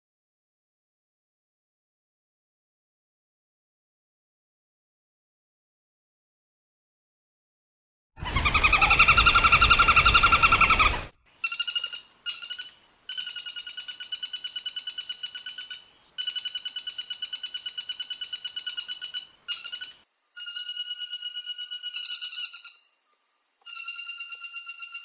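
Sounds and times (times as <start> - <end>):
woodpecker rattling trills: 8.2 - 22.9, 23.6 - 25.0.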